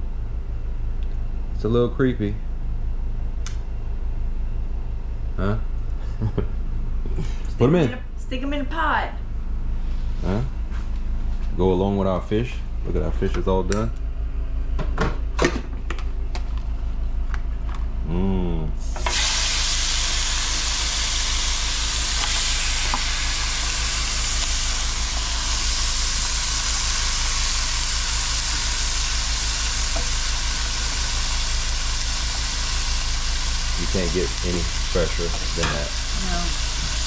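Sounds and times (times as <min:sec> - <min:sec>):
steady low hum: 0:00.0 - 0:37.0
loud sizzle in hot oil: 0:18.8 - 0:37.0.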